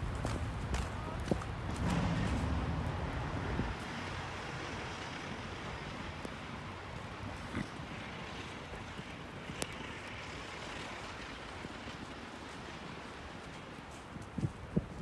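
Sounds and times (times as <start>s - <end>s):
wind noise: 14.2s - 15.0s.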